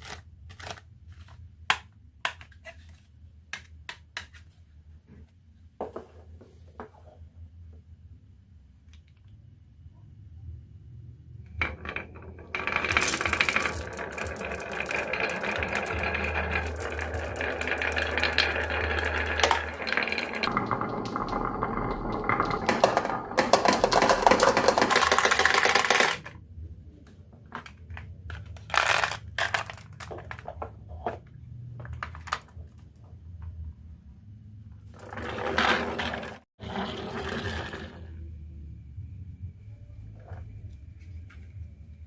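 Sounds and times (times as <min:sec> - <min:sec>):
marbles rattling down a run: 0:11.6 - 0:26.3, 0:28.6 - 0:30.4, 0:35.0 - 0:38.0.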